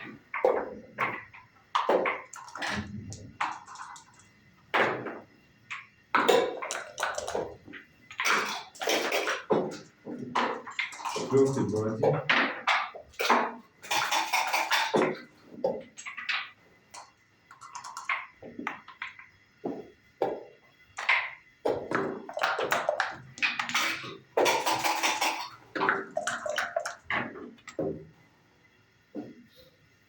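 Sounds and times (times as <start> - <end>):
dice rattling in cups: 10.6 - 12.2, 17.5 - 18.3, 22.3 - 27.2
checkers clacking on board: 22.2 - 27.8.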